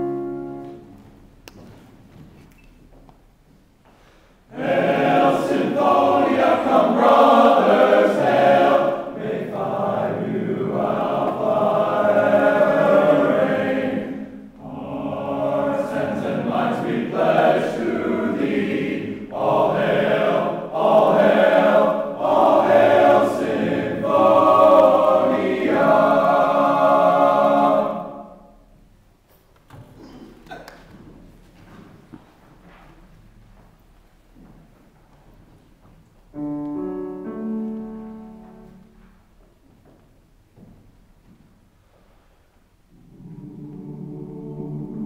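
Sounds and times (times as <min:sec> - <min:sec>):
men singing a hymn: 0:04.5 - 0:28.3.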